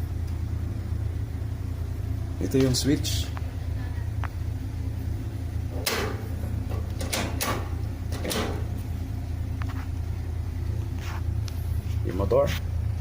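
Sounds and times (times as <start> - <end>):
steady low hum: 0.0 - 13.0
machine parts knocking and clattering: 5.8 - 8.7.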